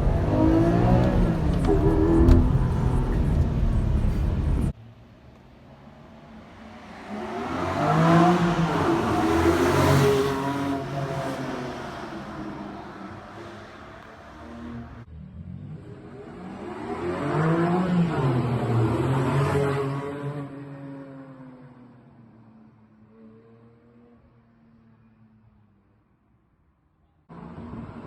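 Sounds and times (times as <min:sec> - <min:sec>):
car accelerating hard: 0:00.0 - 0:04.7, 0:06.9 - 0:21.0
sports car engine rumbling: 0:00.0 - 0:06.3.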